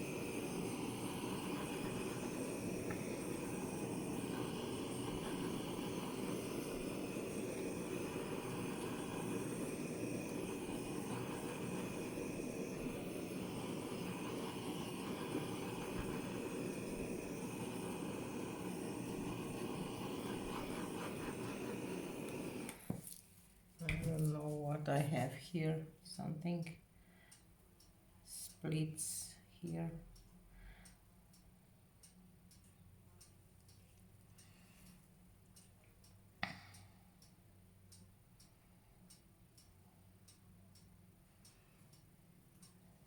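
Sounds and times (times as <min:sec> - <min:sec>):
hair dryer blowing with high whine: 0:00.0 - 0:23.0.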